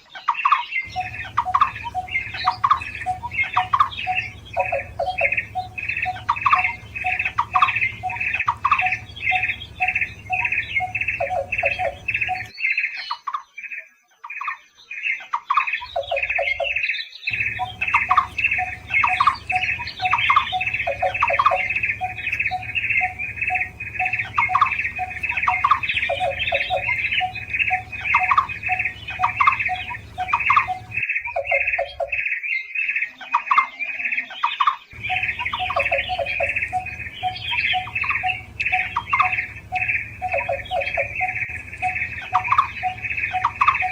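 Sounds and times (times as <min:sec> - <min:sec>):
barbet calling: 0:00.9 - 0:12.5, 0:15.8 - 0:32.2, 0:34.9 - 0:43.9
lower quicker bird notes: 0:00.9 - 0:12.5, 0:17.3 - 0:31.1, 0:35.0 - 0:43.9.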